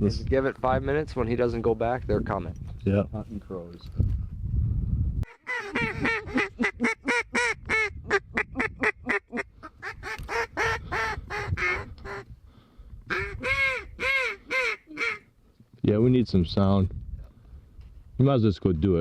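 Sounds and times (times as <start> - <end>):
duck quacking: 5.3 - 12.2, 13.1 - 15.3.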